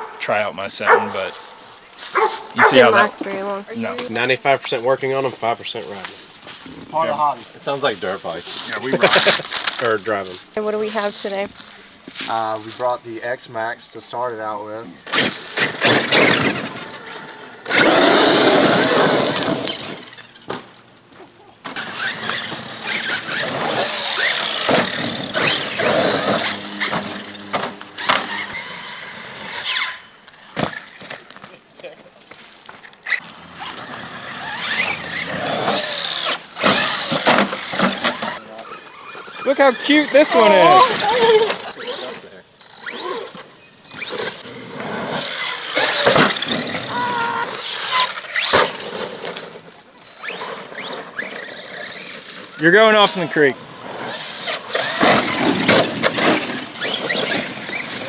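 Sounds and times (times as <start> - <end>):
electric motor whining: 15.0 - 20.8, 21.6 - 31.0, 33.0 - 58.0.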